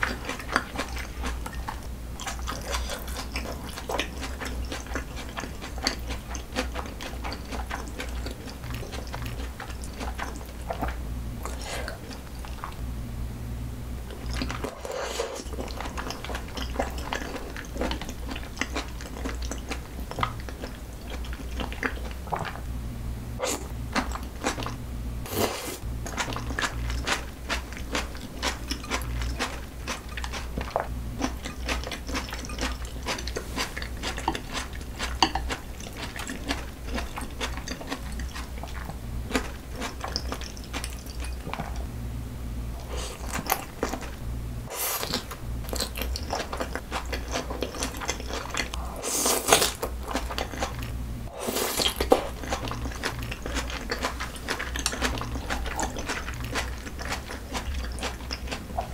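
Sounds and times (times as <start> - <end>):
wet chewing and biting: 0.0 - 12.8, 14.1 - 22.6, 23.9 - 41.9, 42.8 - 58.9.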